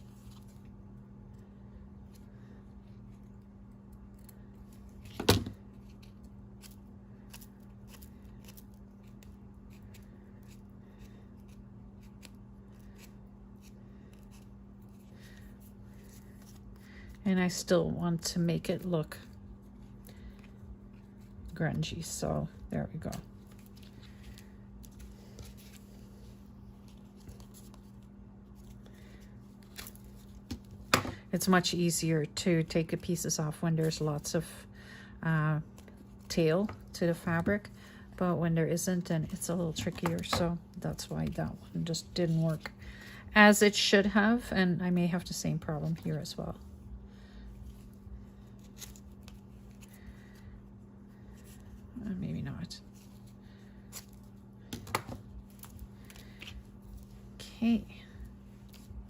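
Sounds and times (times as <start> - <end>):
steady low hum: 0.0 - 59.0
fabric and paper rustling: 4.0 - 31.7, 45.1 - 59.0.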